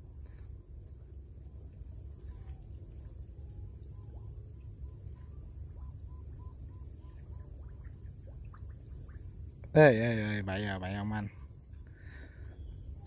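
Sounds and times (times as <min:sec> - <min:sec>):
steady low rumble: 0:00.0 - 0:13.0
birds calling: 0:05.8 - 0:09.3.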